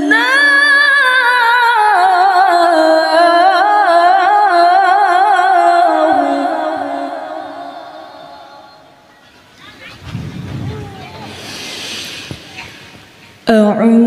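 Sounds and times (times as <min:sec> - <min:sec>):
woman reciting melodically: 0:00.0 - 0:08.8, 0:13.4 - 0:14.0.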